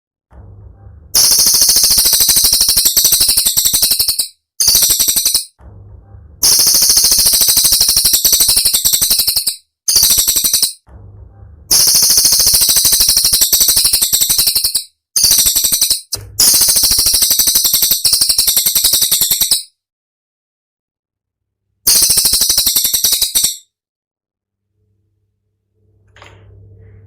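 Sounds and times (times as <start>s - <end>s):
songbird rattling trills: 1.2s - 5.6s, 6.4s - 10.8s, 11.7s - 19.7s, 21.9s - 23.6s.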